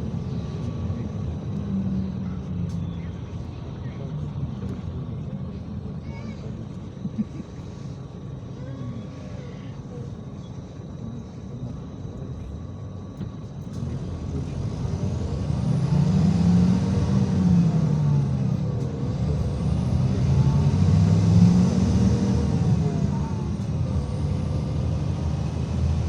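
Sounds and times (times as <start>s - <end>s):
faint voices: 0.0s - 15.9s, 16.7s - 25.4s
bus diesel engine running: 0.0s - 26.0s.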